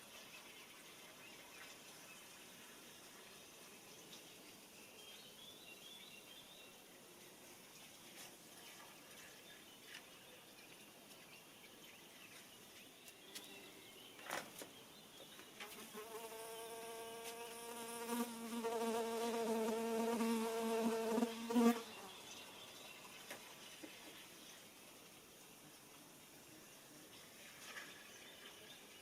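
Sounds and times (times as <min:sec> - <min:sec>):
flying insect buzzing: 0:15.6 - 0:22.2.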